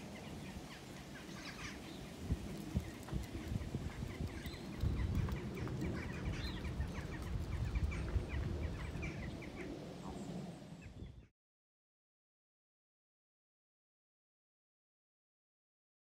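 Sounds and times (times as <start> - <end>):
birds chirping: 0.0 - 11.3.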